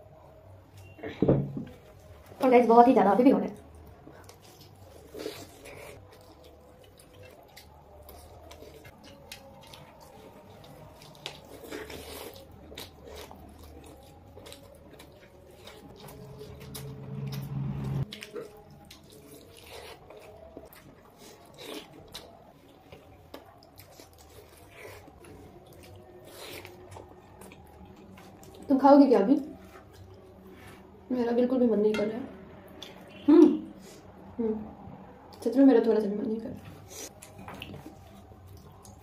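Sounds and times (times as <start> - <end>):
wet chewing and mouth sounds: 3.4 - 31.0, 36.6 - 39.0
low drone: 16.0 - 18.1.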